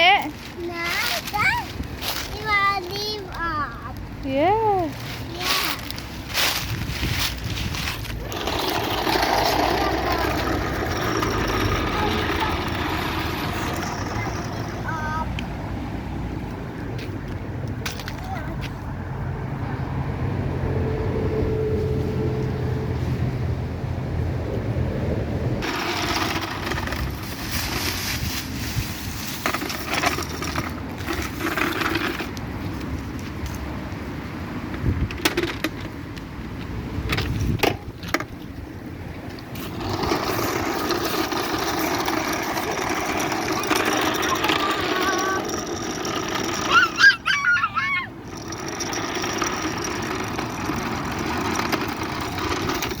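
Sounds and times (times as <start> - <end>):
dry leaves rustling and crunching: 0.0 - 11.8, 25.6 - 30.4
motor running steadily: 39.6 - 53.0
high wavering voice: 46.7 - 48.2.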